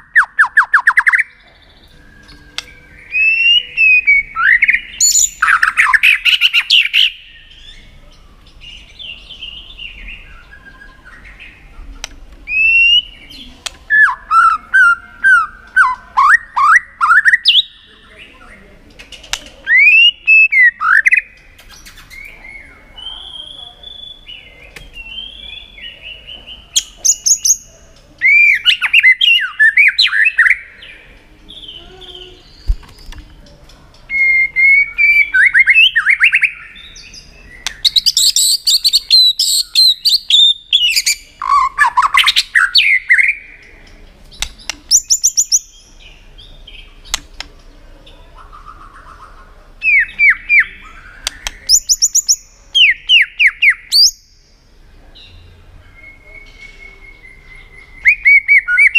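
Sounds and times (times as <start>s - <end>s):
bird singing whistled phrases: 0.0s - 7.8s, 12.5s - 18.0s, 19.7s - 26.0s, 26.8s - 30.9s, 34.1s - 43.5s, 49.8s - 54.4s, 55.9s - 58.9s
bird clicking calls: 37.6s - 40.2s, 43.8s - 45.6s, 51.2s - 52.9s.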